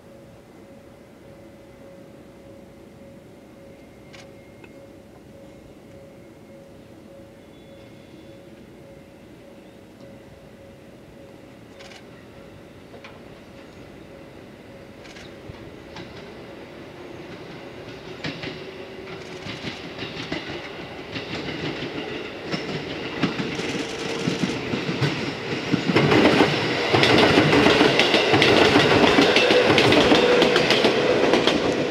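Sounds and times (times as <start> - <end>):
electric train hum: 0.0 - 31.9
train wheels clacking over rail joints: 17.3 - 31.9.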